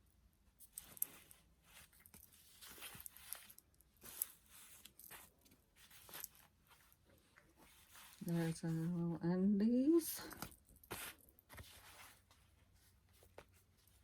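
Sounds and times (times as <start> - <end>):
fabric dress rustling: 0.6 - 14.0.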